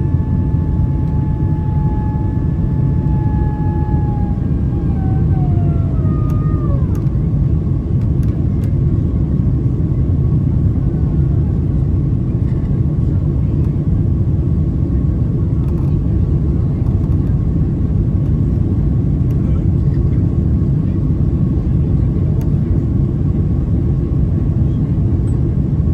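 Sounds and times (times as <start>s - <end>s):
falling two-tone whine: 0.0s - 7.9s
jet engines rumbling in cabin: 0.0s - 25.9s.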